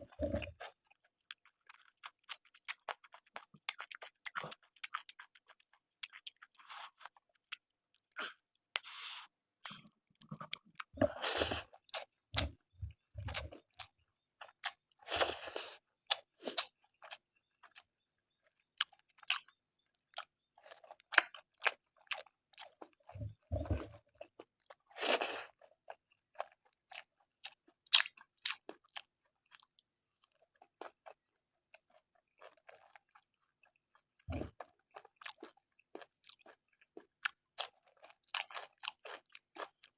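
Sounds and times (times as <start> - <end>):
person chewing and crunching: 0.1 - 39.9.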